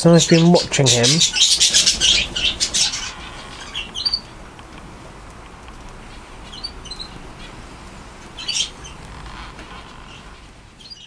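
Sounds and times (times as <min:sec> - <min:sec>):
budgerigars chirping: 0:00.0 - 0:04.4, 0:06.4 - 0:07.7, 0:08.3 - 0:11.0.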